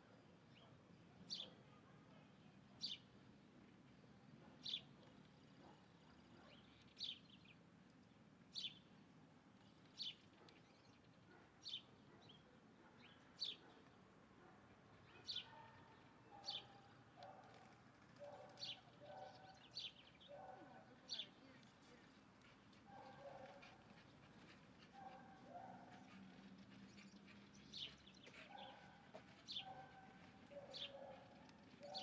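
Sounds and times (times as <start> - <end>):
bird chirping: 22.9 - 32.0.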